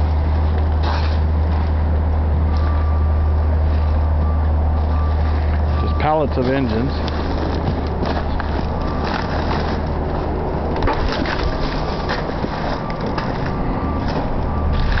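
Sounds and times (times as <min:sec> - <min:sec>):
debris crunching underfoot: 0:05.2 - 0:15.0.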